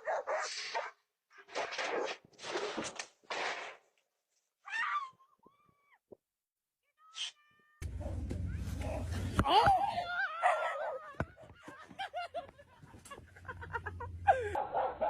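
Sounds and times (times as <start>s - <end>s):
low hum: 7.8s - 9.9s.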